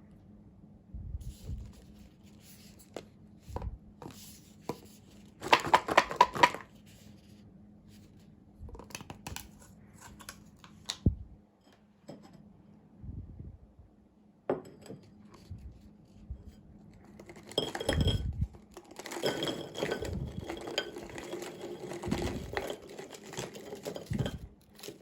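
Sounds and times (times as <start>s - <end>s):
packaging rustling: 18.7s - 25.0s.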